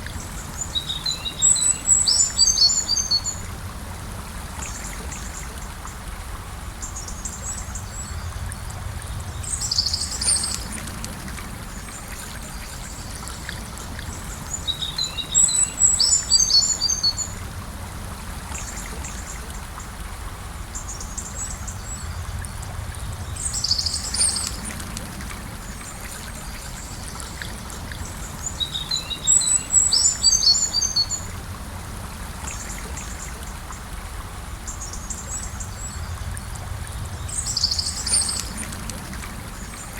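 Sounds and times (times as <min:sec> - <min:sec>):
gentle river flowing: 0:00.0 - 0:39.9
birds chirping: 0:26.8 - 0:31.3.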